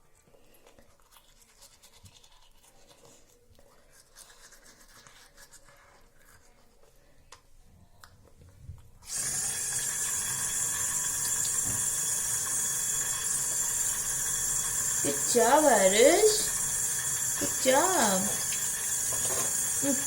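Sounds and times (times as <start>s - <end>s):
water running into sink: 9.0s - 20.0s.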